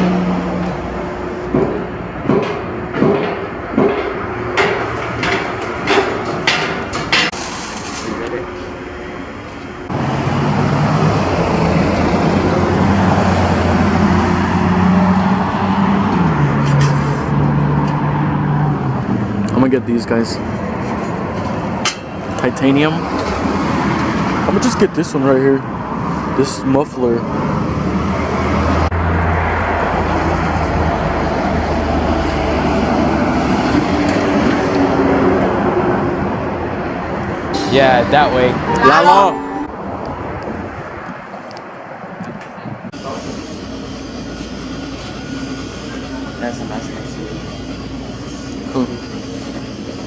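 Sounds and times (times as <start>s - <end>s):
road traffic noise: 0.0s - 19.6s, 20.4s - 39.0s.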